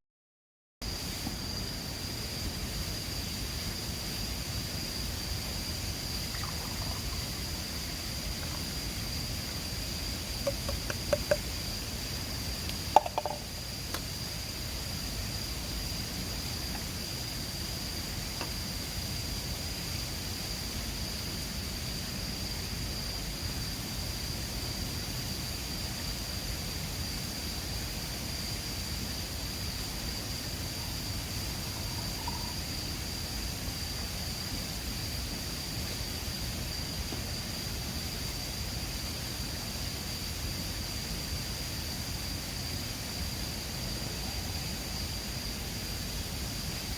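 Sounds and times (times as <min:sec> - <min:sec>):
continuous high-pitched tone: 0:00.8 - 0:19.1, 0:28.5 - 0:34.3.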